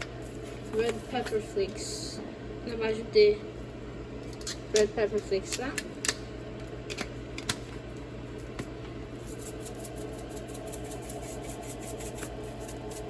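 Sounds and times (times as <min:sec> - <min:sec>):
container being shaken: 0:09.2 - 0:13.0.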